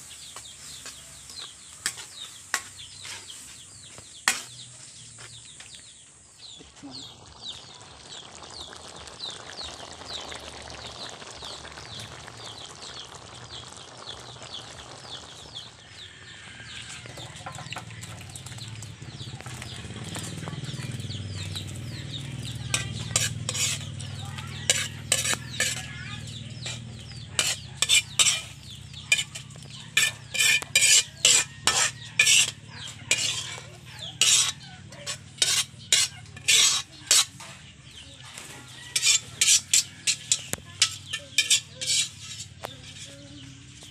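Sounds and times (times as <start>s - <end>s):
stew simmering and bubbling: 0.0s - 43.9s
metal spoon scraping a wok: 0.1s - 4.7s, 16.4s - 43.8s.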